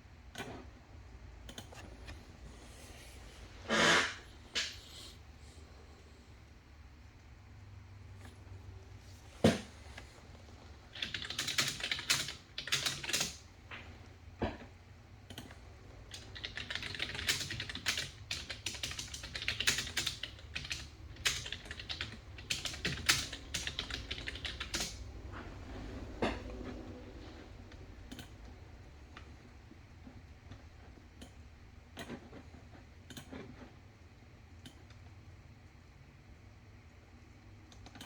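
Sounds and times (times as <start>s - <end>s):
typing on computer keyboard: 1.4s - 1.9s, 10.8s - 13.5s, 14.6s - 25.0s, 28.1s - 28.5s, 32.0s - 33.7s, 37.6s - 38.0s.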